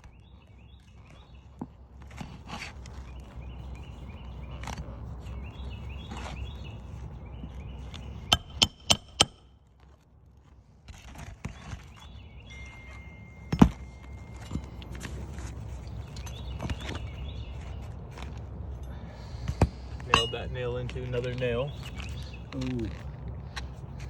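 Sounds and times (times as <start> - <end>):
hammer striking nails: 8.3 - 9.5.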